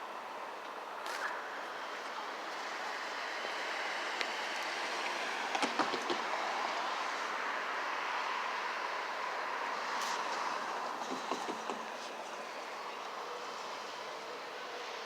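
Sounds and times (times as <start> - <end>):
train wheels on rail: 3.5 - 6.7, 9.9 - 12.4
clicks over rail joints: 11.0 - 12.1.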